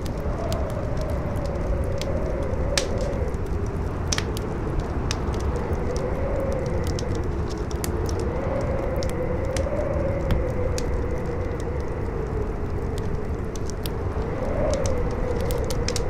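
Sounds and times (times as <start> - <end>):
howling wind: 0.0 - 16.0
wood fire crackling: 0.0 - 16.0.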